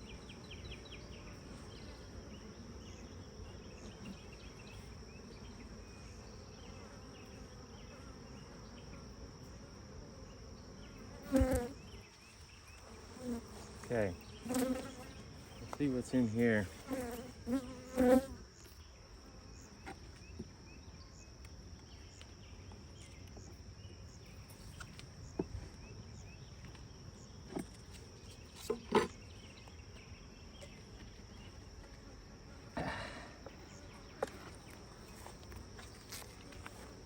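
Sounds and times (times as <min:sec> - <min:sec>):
honeybees buzzing: 0:00.0 - 0:20.3, 0:25.2 - 0:37.0.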